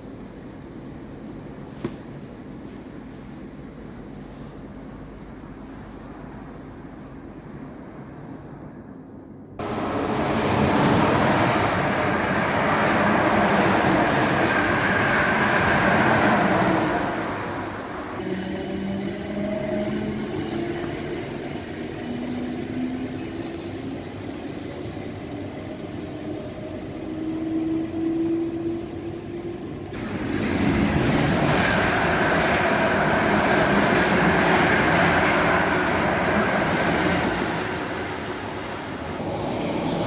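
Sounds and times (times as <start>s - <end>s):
train running noise rush: 0.0s - 40.0s
electric train motors whining: 9.6s - 21.0s.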